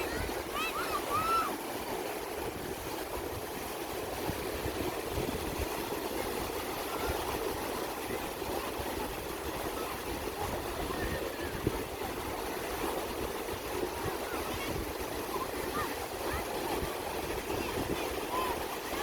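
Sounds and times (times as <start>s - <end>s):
sea surf rushing: 0.0s - 7.5s.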